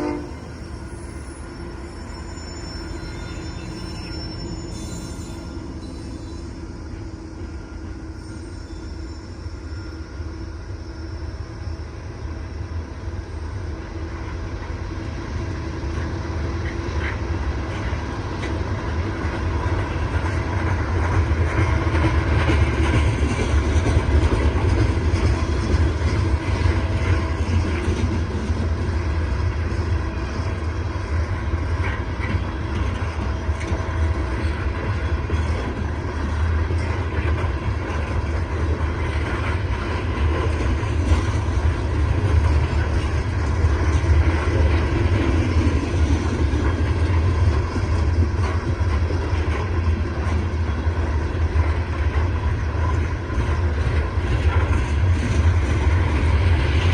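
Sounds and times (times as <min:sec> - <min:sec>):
train wheels rumbling on rails: 0:00.0 - 0:56.9
faint clickety-clack: 0:15.9 - 0:56.9.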